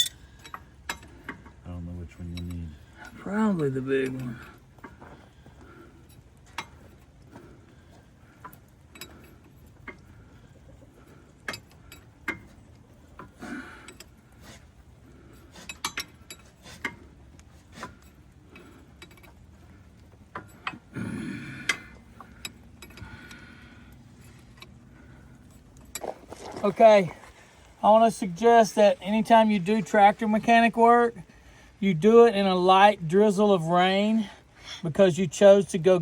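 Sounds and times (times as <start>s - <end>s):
wrenches clinking on metal: 0.0s - 1.5s.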